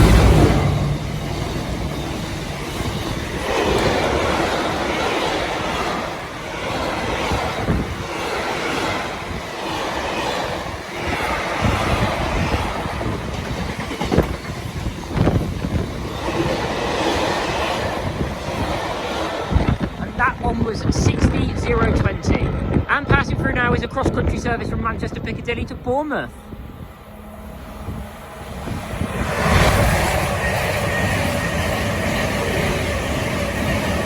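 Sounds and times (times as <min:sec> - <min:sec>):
train wheels clattering over rail joints: 0:00.0 - 0:20.0.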